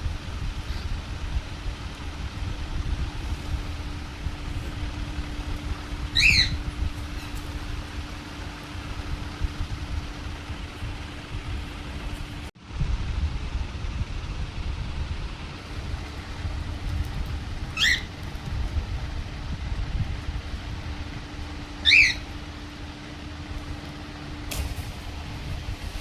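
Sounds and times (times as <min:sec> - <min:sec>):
low rumble with faint hum: 0:00.0 - 0:26.0
parrot squawking: 0:06.1 - 0:07.7, 0:17.6 - 0:18.2, 0:21.7 - 0:22.5.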